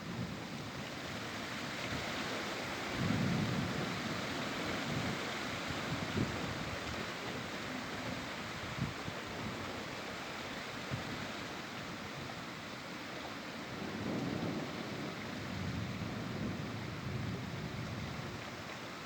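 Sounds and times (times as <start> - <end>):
steady rain falling: 0.0 - 19.0
thunder rumbling: 13.8 - 17.8.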